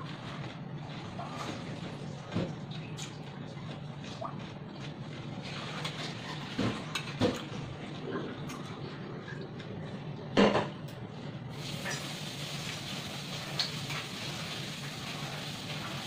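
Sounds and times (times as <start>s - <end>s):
chewing crunchy food: 0.0s - 10.4s.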